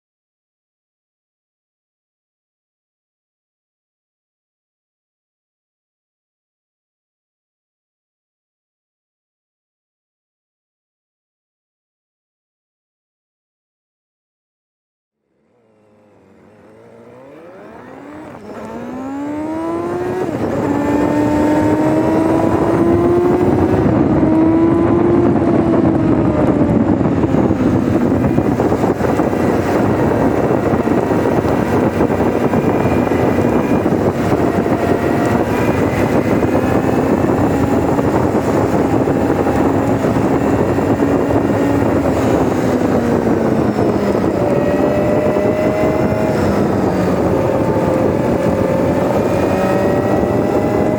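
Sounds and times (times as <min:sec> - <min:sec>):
motorcycle engine revving: 0:15.3 - 0:50.9.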